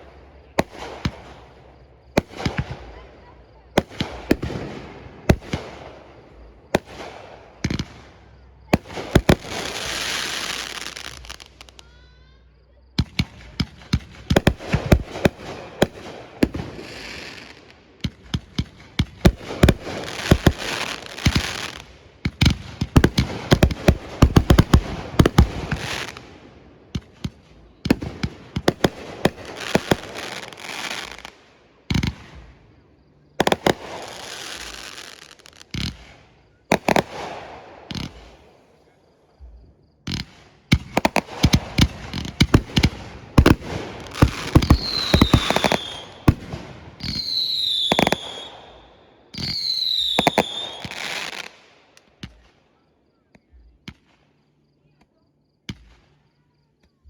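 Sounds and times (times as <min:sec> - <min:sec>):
fireworks crackling: 0:00.0 - 0:12.3, 0:13.0 - 0:32.6, 0:33.4 - 0:38.7, 0:40.1 - 0:52.5
firework shells bursting: 0:13.0 - 0:32.4, 0:40.1 - 0:52.4
firework whistle: 0:44.0 - 0:46.4, 0:47.0 - 0:51.4.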